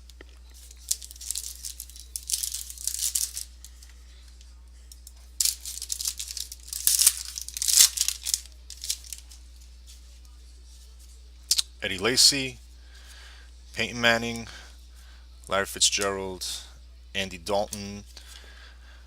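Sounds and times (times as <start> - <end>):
foil card pack tearing and crinkling: 0.9 - 3.4, 5.4 - 9.2.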